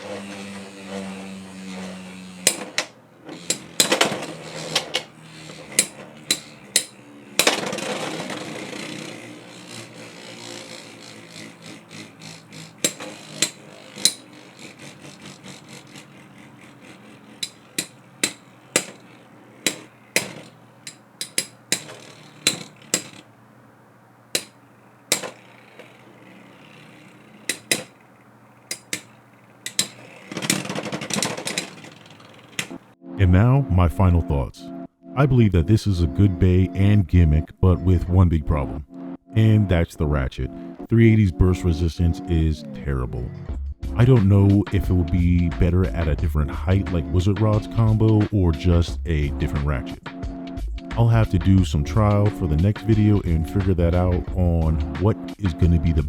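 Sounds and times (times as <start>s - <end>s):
plastic tops clacking: 0.0s - 32.9s
spinning top grinding: 0.0s - 33.0s, 44.0s - 49.9s.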